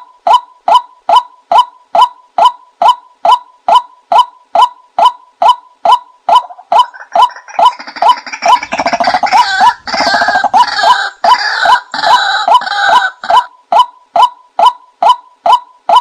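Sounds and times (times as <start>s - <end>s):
fast rattling bird chatter: 6.5s - 12.9s.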